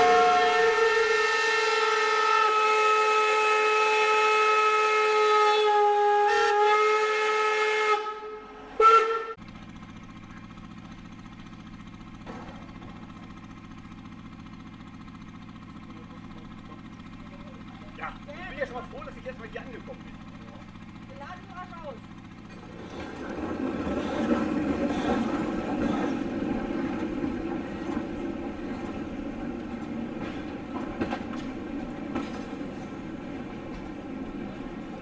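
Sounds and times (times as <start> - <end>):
steam locomotive whistle: 0.0 - 9.4
low engine hum: 9.4 - 35.0.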